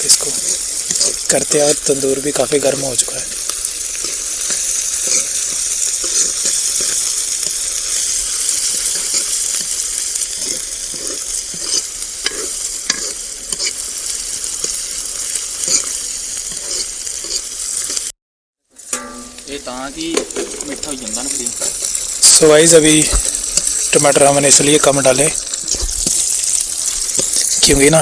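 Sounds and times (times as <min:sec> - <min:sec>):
onions sizzling in hot oil: 0:00.0 - 0:18.2, 0:18.8 - 0:28.0
spoon scraping a pan: 0:00.1 - 0:01.9, 0:03.4 - 0:18.0, 0:23.0 - 0:23.9, 0:25.1 - 0:27.8.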